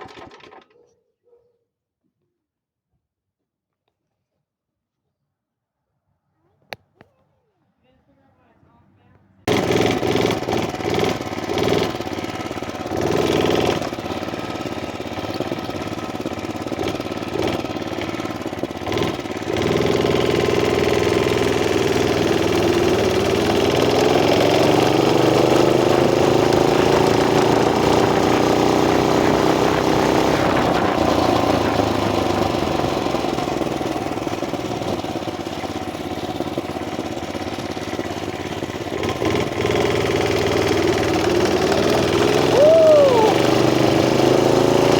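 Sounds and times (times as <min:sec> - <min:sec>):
small motorbike engine running: 0:09.5 - 0:44.9.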